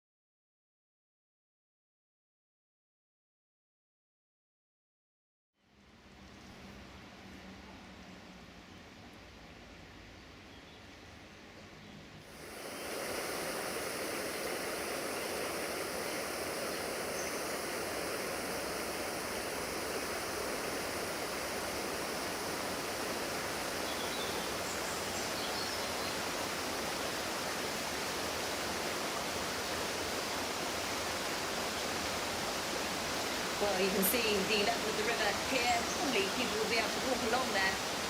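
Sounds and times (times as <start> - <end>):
floodwater rushing: 12.3 - 38.0.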